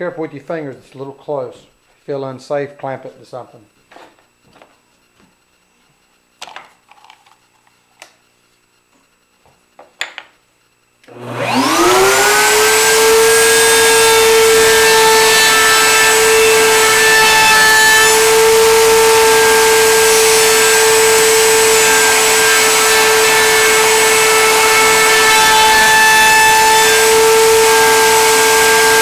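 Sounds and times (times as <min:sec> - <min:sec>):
wood router whining: 0:11.0 - 0:29.0.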